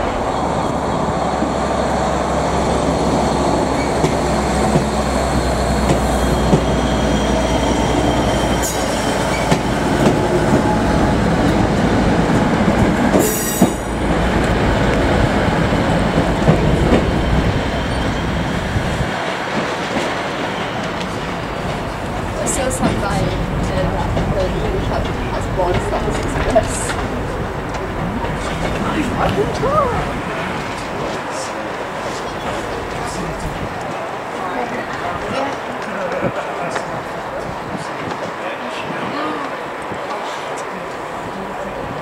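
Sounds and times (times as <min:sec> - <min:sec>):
train rail noise: 0:00.0 - 0:42.0
high wheel squeal: 0:05.4 - 0:09.6, 0:16.7 - 0:19.0.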